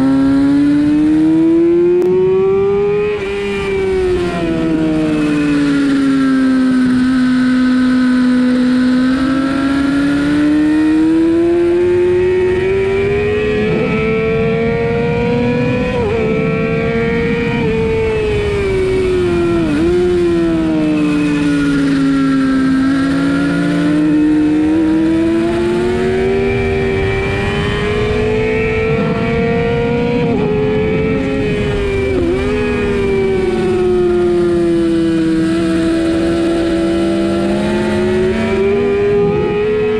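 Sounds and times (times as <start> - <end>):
motorcycle engine revving high: 0.0 - 39.9.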